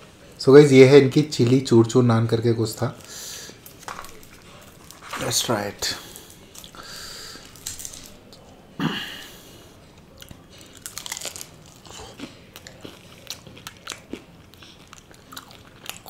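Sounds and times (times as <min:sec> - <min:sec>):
chewing with crunchy crackles: 0:06.1 - 0:08.6, 0:09.8 - 0:16.0
crunching bite: 0:10.2 - 0:16.0.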